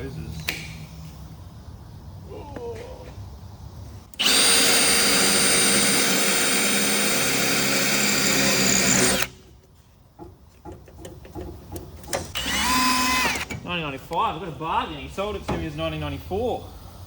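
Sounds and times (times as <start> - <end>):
handheld power tool running: 4.1 - 9.4, 12.3 - 13.5.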